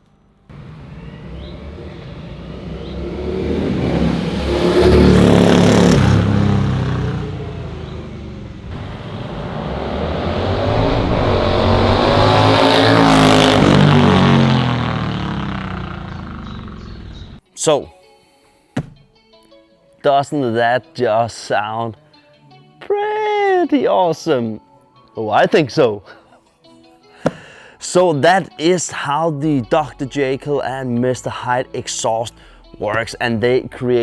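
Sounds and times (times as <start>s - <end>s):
motorcycle passing by: 0.5s - 17.4s.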